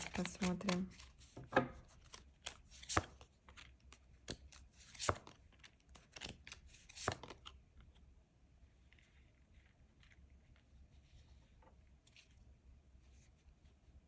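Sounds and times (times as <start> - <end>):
cards shuffling: 0.0 - 7.6.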